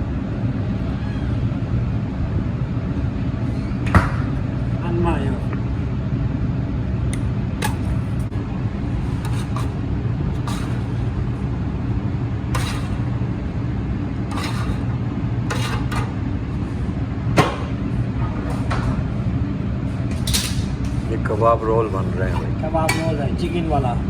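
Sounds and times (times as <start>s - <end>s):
low hum of running equipment: 0.0s - 24.0s
kitchen clatters: 12.6s - 13.0s, 14.3s - 14.9s, 15.5s - 16.2s.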